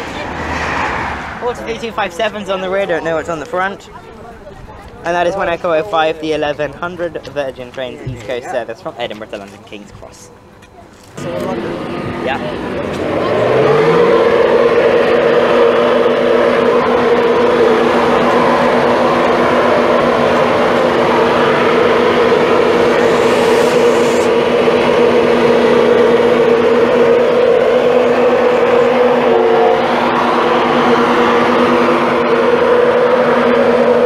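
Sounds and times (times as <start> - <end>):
diesel engine droning: 10.3 - 34.0.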